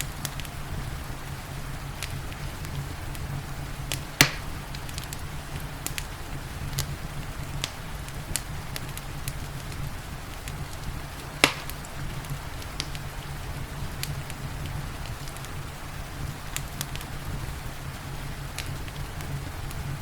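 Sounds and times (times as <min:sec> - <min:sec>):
soft hiss of rain: 0:00.0 - 0:20.0
wood fire crackling: 0:00.0 - 0:20.0
loud pops of fire: 0:01.9 - 0:20.0.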